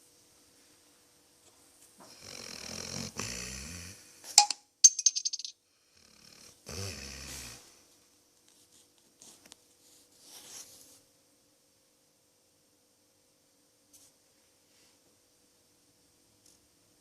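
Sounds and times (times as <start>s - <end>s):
dog snoring: 2.0s - 4.0s, 6.0s - 7.7s.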